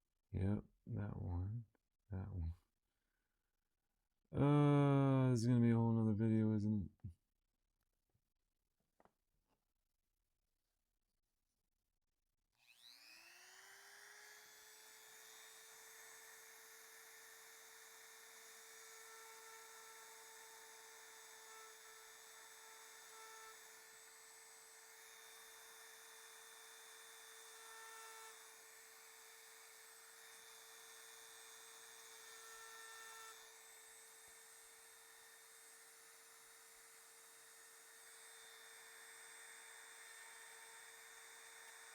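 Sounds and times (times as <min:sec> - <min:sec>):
rotary tool whining: 0:12.6 - 0:41.9.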